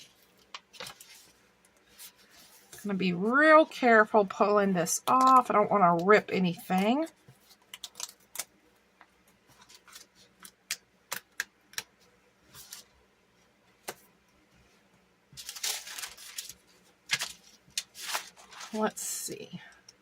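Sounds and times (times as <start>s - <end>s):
papery rustle: 15.4s - 19.0s.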